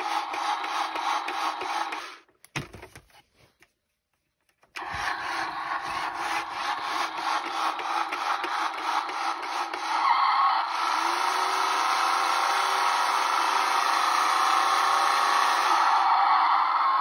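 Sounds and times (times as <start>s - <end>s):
toy motor and gears whirring: 4.8s - 16.1s.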